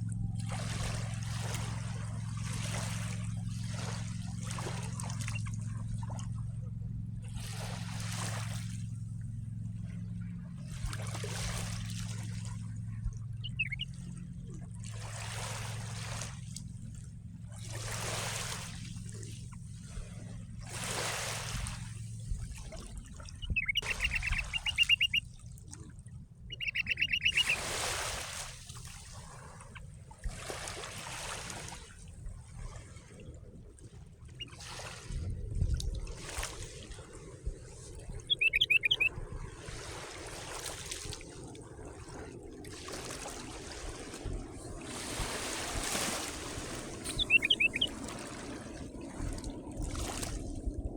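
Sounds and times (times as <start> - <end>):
low steady hum: 0.0 - 40.2, 40.8 - 50.9
songbird trilling: 13.4 - 14.0, 23.3 - 25.2, 26.5 - 27.9, 38.1 - 39.1, 47.0 - 48.1
small waves washing onto shore: 17.5 - 25.2, 26.5 - 33.2, 34.4 - 50.7.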